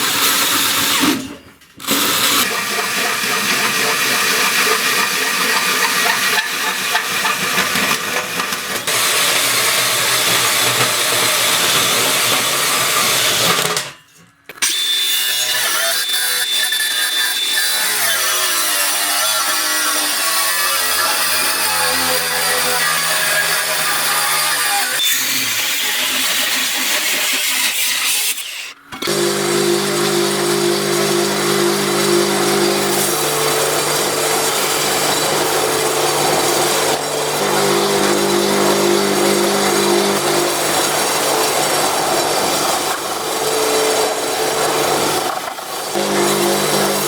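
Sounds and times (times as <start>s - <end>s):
power tool working on metal: 0.0s - 14.0s, 14.6s - 47.0s
steady motor hum: 29.0s - 47.0s.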